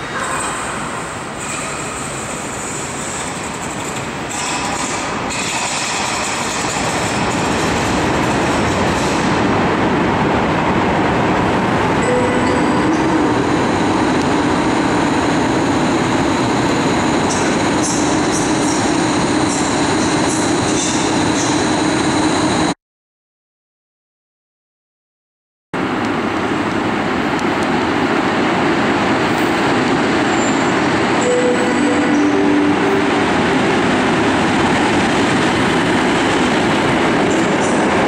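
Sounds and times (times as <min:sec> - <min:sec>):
train coaches rumbling on rails: 0:00.0 - 0:22.8, 0:25.8 - 0:38.0
high-pitched wheel squeals: 0:30.3 - 0:33.4.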